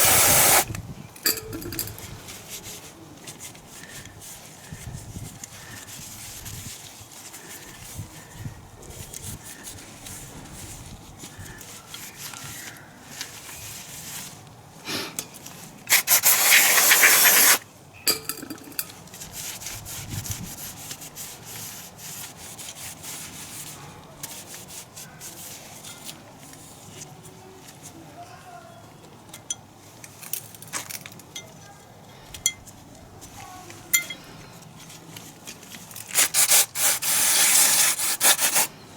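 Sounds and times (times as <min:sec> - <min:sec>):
loud hiss: 0:00.0 - 0:00.8, 0:15.9 - 0:17.6, 0:36.2 - 0:38.7
scraping and rubbing: 0:00.0 - 0:02.9, 0:15.9 - 0:17.6, 0:35.9 - 0:38.7.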